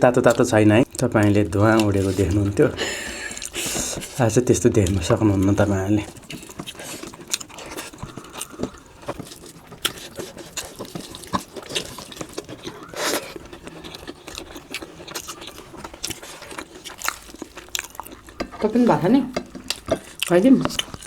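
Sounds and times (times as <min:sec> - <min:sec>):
chewing and mouth sounds: 0:00.0 - 0:21.0.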